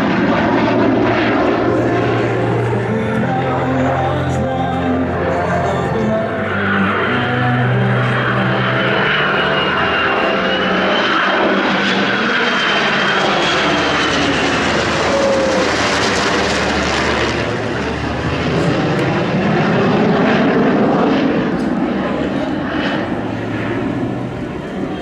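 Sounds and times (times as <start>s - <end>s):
aircraft engine noise: 0.0s - 25.0s.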